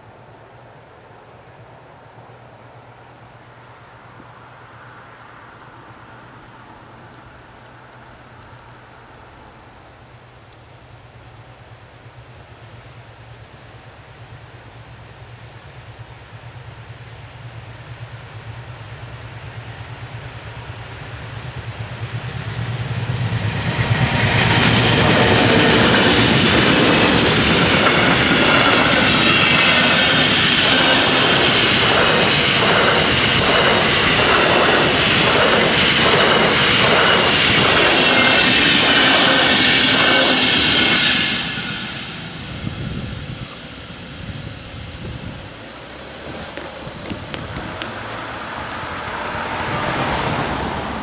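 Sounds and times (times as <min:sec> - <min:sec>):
train rushing past: 0:02.4 - 0:51.0
wheels clattering over rail joints: 0:23.1 - 0:43.6, 0:45.2 - 0:51.0.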